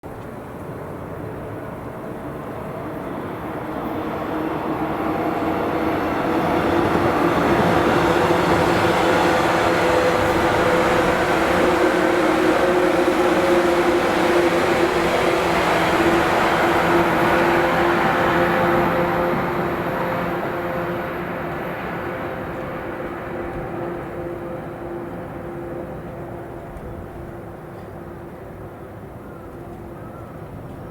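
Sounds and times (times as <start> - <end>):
wheel and rail noise: 0.1 - 30.9
electric train motor whine: 8.4 - 21.2.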